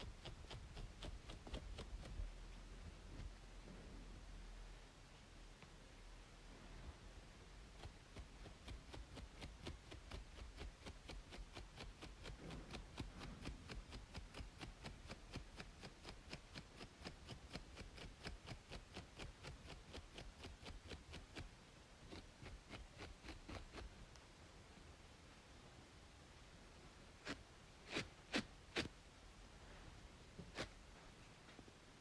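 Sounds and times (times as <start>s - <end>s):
scratching strokes on scalp: 0.0s - 3.4s, 7.6s - 24.0s, 27.2s - 29.0s, 30.4s - 31.0s
white-noise hiss: 0.0s - 32.0s.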